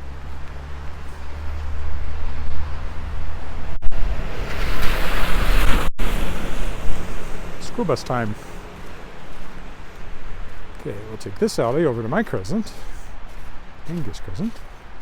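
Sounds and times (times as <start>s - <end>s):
vehicle engine humming: 0.0s - 4.5s, 6.0s - 13.9s
tyres hissing through wet slush: 4.4s - 14.9s.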